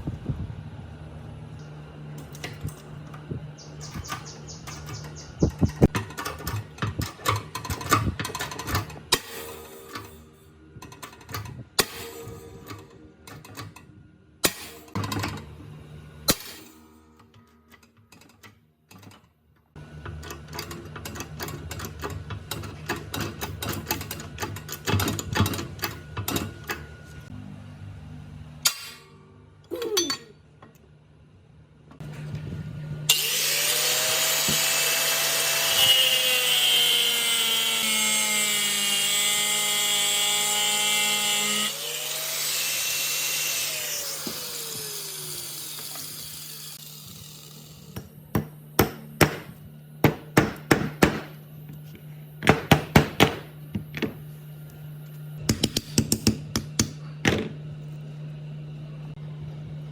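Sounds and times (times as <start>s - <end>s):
electric power tool running: 33.1s - 48.7s.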